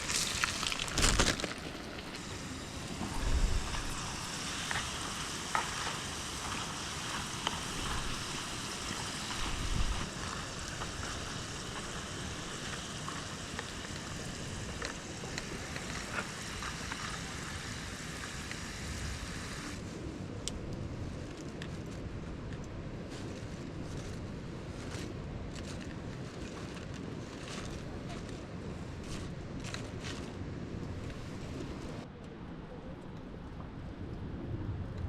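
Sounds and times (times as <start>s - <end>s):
fries sizzling in hot oil: 0.0s - 19.8s.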